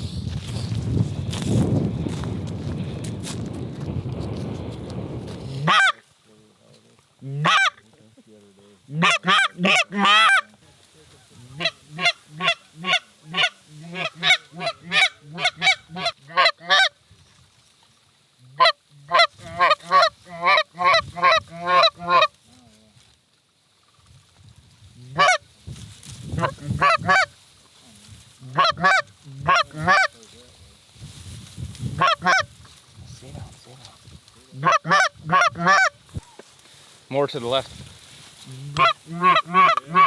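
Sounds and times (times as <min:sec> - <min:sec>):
goose honks and clucks: 0:05.6 - 0:06.0, 0:07.3 - 0:07.8, 0:08.9 - 0:10.6, 0:11.2 - 0:17.0, 0:18.5 - 0:22.4, 0:25.1 - 0:25.4, 0:26.4 - 0:27.4, 0:28.4 - 0:30.2, 0:32.0 - 0:32.5, 0:34.5 - 0:36.4, 0:38.6 - 0:40.0.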